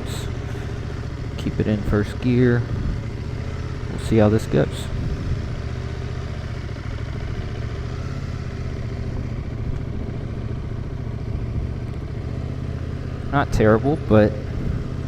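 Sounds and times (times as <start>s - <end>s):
motorcycle engine running at low revs: 0.0s - 15.0s.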